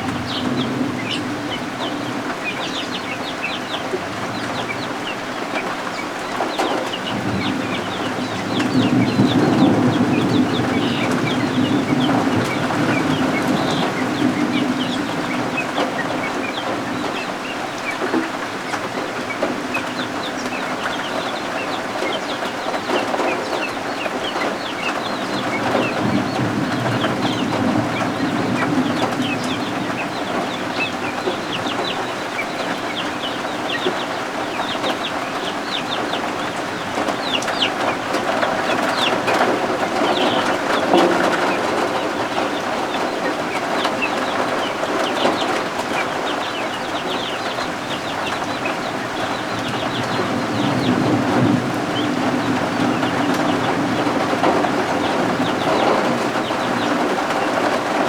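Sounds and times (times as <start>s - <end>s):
chicks peeping: 0.0s - 58.0s.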